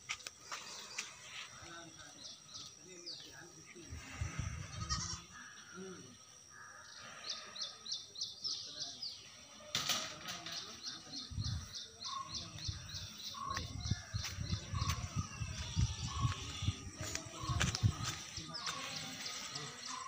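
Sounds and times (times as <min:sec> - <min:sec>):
small bird chirping: 0:10.6 - 0:20.0.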